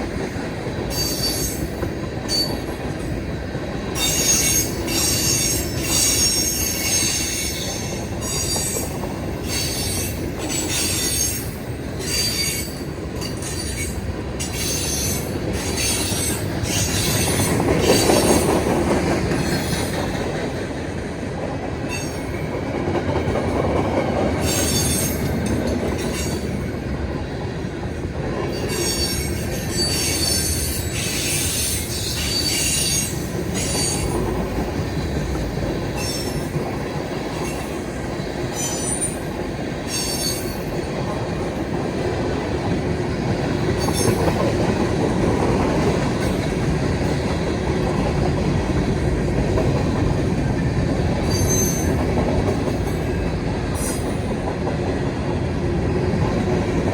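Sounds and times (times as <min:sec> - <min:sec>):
freight train wheels rumbling: 0:00.0 - 0:56.9
high-pitched wheel squeals: 0:39.9 - 0:40.6, 0:51.3 - 0:52.0.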